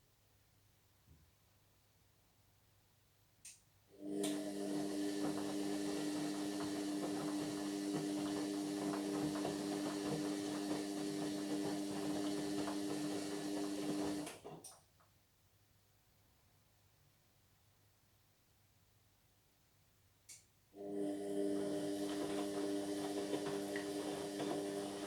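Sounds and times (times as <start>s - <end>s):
washing machine humming: 3.9s - 14.6s, 20.8s - 25.0s.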